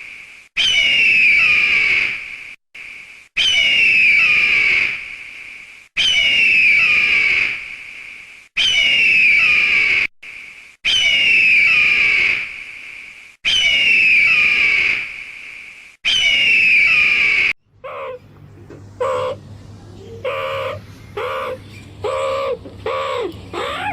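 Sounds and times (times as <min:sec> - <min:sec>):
shrill animal scream: 0:00.6 - 0:02.3, 0:03.4 - 0:05.1, 0:06.0 - 0:07.6, 0:08.6 - 0:10.1, 0:10.8 - 0:12.5, 0:13.4 - 0:15.1, 0:16.0 - 0:18.2, 0:19.0 - 0:19.4, 0:20.2 - 0:23.9.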